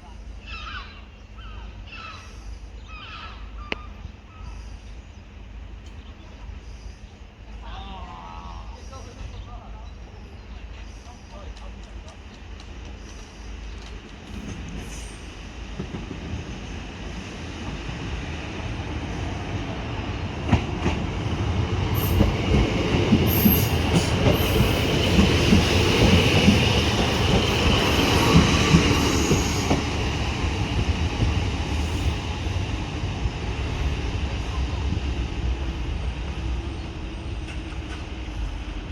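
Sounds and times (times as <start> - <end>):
train passing: 0.0 - 38.9
hiss from wheels and rails: 10.0 - 38.9.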